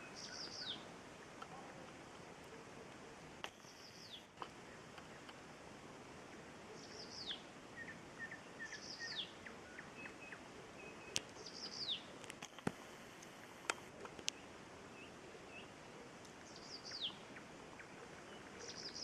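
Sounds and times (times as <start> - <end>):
small bird high call: 0.0 - 0.9, 6.7 - 12.1, 14.3 - 19.0
nightingale singing: 0.0 - 5.4, 6.3 - 12.7, 13.9 - 19.0.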